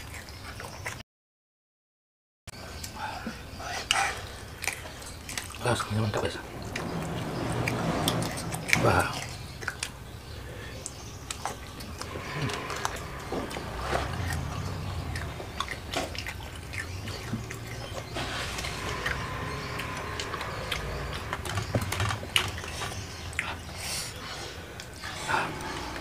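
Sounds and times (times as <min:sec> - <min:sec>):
chewing crispy fried food: 0:03.7 - 0:06.2, 0:10.6 - 0:24.1.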